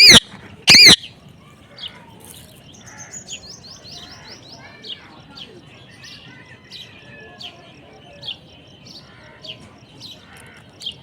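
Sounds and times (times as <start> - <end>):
parrot chirping: 0.0 - 1.0.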